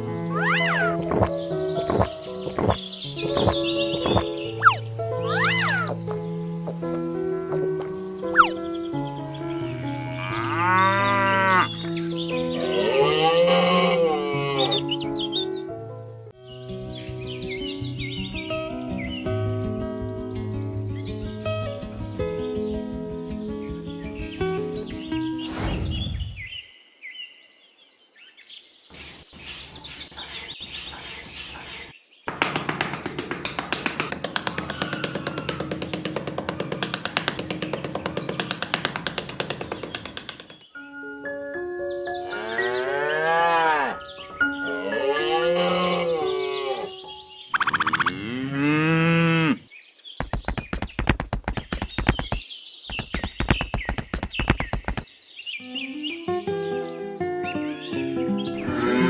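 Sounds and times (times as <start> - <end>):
high chirps: 0.0 - 7.5, 8.2 - 8.7, 47.4 - 48.2
outdoor ambience: 0.0 - 14.7, 28.8 - 41.4
music: 0.0 - 25.6, 32.6 - 47.5, 55.6 - 59.0
birds chirping: 0.0 - 59.0
cow mooing: 9.5 - 11.7, 12.6 - 14.9, 42.3 - 44.0, 44.8 - 46.9, 48.1 - 49.6, 58.6 - 59.0
fast sharp clicks: 32.3 - 40.7, 50.2 - 55.1.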